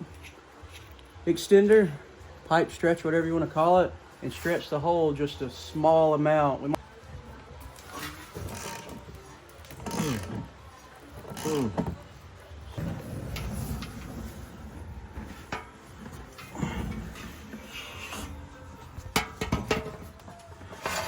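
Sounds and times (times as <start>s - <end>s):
tools scraping and knocking: 12.8s - 21.0s.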